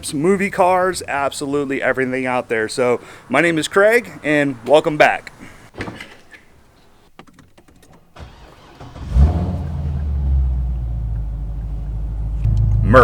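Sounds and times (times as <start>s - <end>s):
car engine starting and idling: 8.1s - 13.0s.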